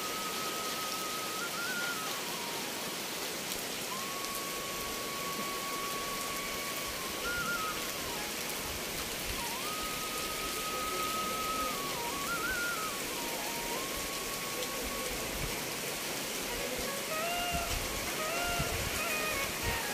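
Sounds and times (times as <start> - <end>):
heavy rain falling: 0.0 - 19.9.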